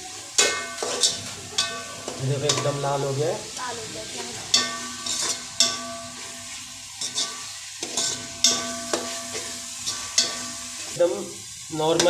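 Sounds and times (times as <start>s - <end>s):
onions sizzling in oil: 0.0s - 12.0s
pot ringing: 0.4s - 3.0s, 4.5s - 10.9s.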